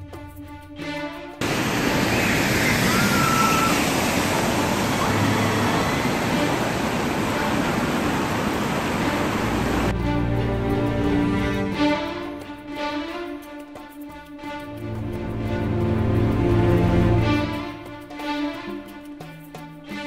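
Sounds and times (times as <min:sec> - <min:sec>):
orchestral music: 0:00.0 - 0:20.0
car tyres splashing through water: 0:01.4 - 0:09.9
heavy rain pouring: 0:01.4 - 0:09.9.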